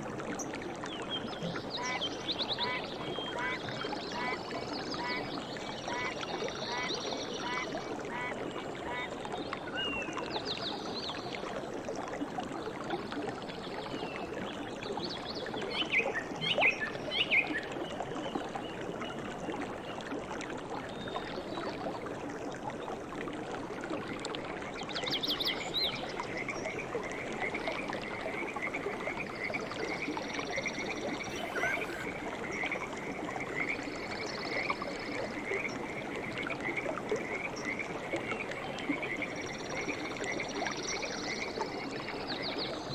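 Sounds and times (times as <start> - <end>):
flowing water: 0.0 - 42.9
frogs croaking: 2.6 - 9.1, 26.5 - 37.9
rapid pulsing animal call: 31.2 - 32.1
short bird calls: 31.2 - 32.2.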